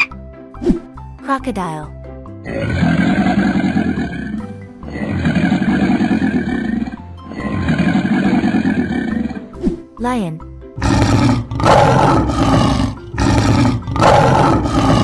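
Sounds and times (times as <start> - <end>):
cartoon crocodile growls: 2.4 - 9.5, 10.8 - 15.0.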